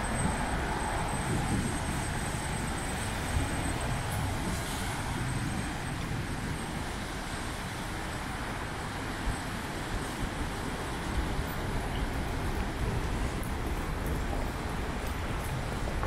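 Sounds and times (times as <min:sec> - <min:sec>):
heavy rain on street: 0:00.0 - 0:16.0
road traffic: 0:00.0 - 0:16.0.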